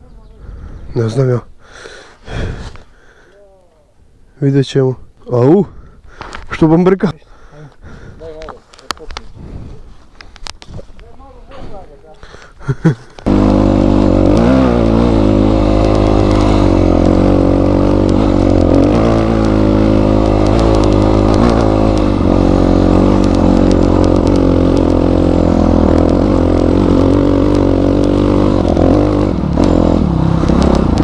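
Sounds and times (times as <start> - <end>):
faint clicks: 10.2 - 11.1
motorcycle engine revving: 12.6 - 31.0.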